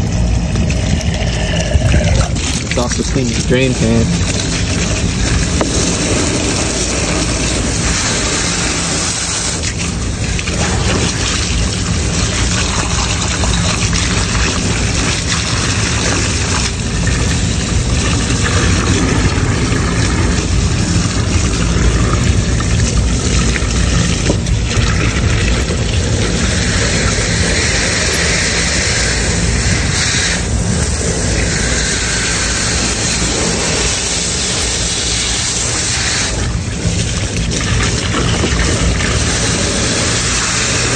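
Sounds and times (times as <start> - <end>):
low machinery hum: 0.0 - 40.9
water spraying and running: 0.0 - 40.9.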